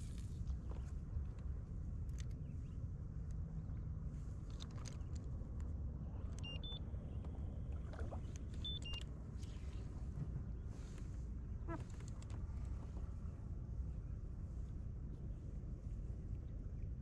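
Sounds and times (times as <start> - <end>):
water and air rumbling around kayak: 0.0 - 17.0.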